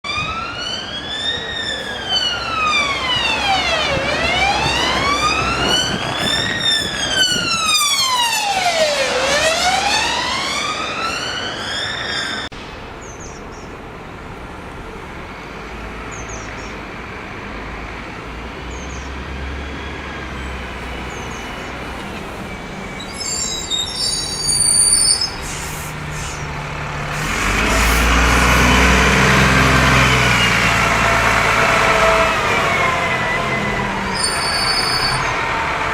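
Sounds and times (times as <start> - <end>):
emergency siren wailing: 0.0 - 12.5, 19.3 - 35.9
road traffic: 0.0 - 35.9
vehicle passing: 0.1 - 12.4, 25.8 - 35.9
high squeal: 0.4 - 8.0, 21.0 - 26.6, 31.6 - 35.6.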